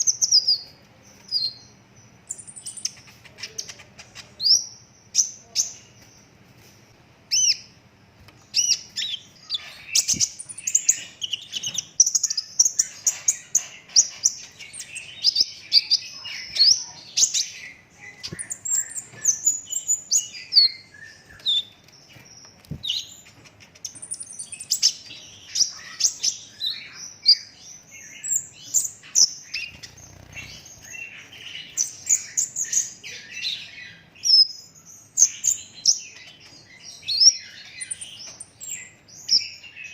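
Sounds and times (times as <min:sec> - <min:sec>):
sunbird singing rapid chirps: 0:08.4 - 0:39.9.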